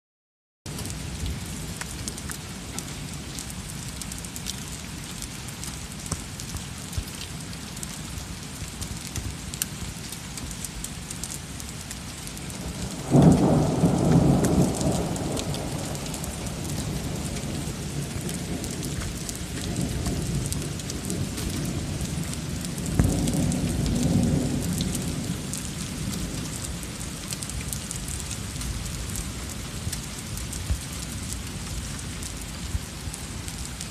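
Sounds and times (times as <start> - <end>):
heavy rain falling: 0.7 - 33.9
rain drops ticking: 0.7 - 33.9
thunder cracking and rumbling: 12.4 - 33.2.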